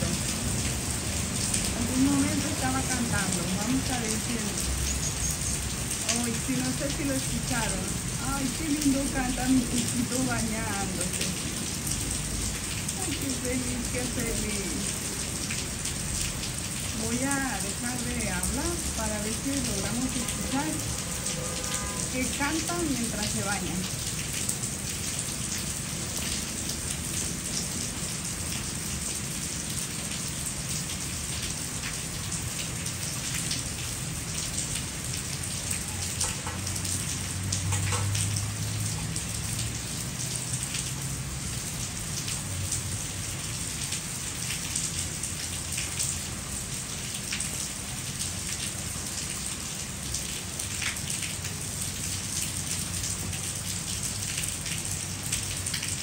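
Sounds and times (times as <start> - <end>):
rain falling: 0.0 - 56.0
raindrops striking close by: 0.0 - 56.0.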